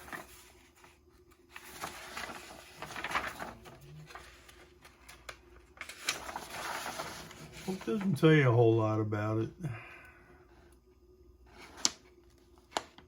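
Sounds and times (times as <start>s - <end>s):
plastic parts and packaging rustling: 0.0s - 8.3s.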